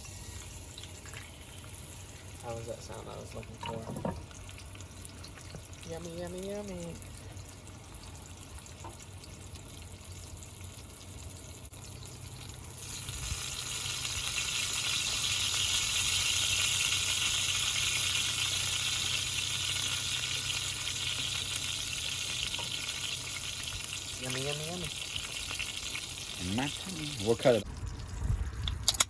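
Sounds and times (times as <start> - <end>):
steak sizzling in a pan: 12.7 - 27.6.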